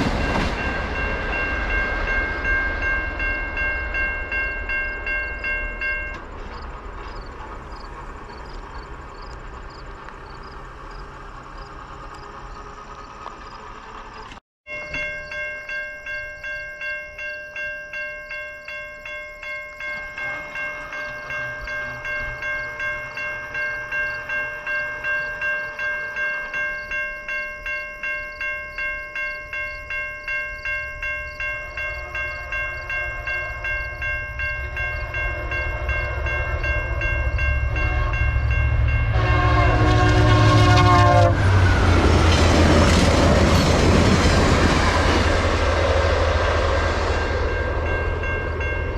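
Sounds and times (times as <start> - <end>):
level-crossing warning bell ringing: 0.0 - 48.9
train rumbling on rails: 0.0 - 48.9
locomotive horn: 19.9 - 25.1, 31.8 - 34.0, 34.6 - 43.1.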